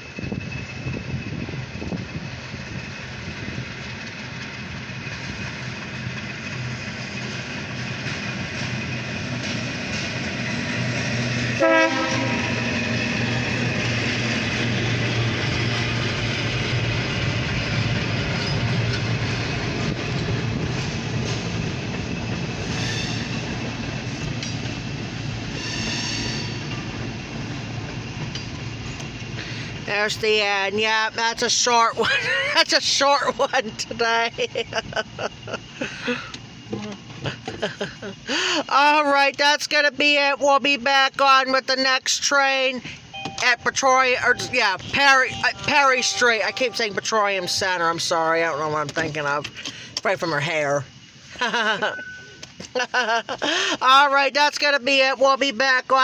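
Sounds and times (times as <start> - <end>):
locomotive engine humming: 0.0 - 39.7, 42.0 - 55.2
freight train rolling past: 0.0 - 56.0
train horn blast: 11.6 - 13.0
high-pitched wheel squeals: 25.6 - 26.8.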